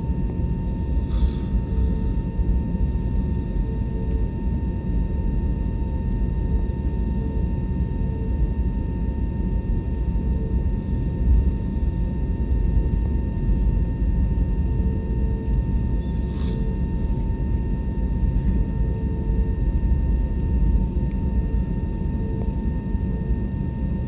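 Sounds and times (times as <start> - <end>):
airliner cabin rumble: 5.2 - 24.0.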